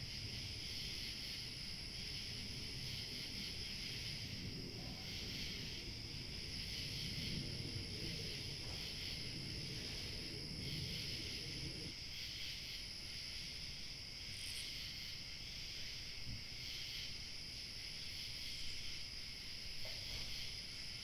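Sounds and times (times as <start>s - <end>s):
crickets chirping: 0.0s - 21.0s
high insect trill: 0.0s - 21.0s
low rumble: 4.2s - 11.9s.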